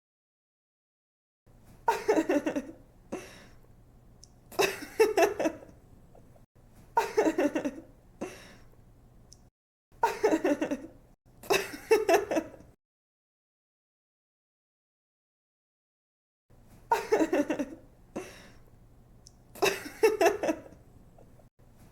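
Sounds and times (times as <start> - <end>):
young woman giggling: 1.9 - 2.8, 4.5 - 5.7, 7.0 - 7.9, 10.0 - 12.7, 16.9 - 18.4, 19.6 - 21.4.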